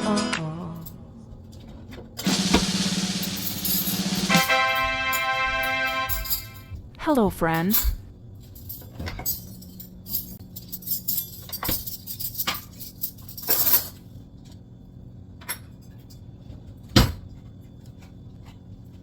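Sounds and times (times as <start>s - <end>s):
steady low hum: 0.5s - 19.0s
household objects clinking and knocking: 1.6s - 6.7s.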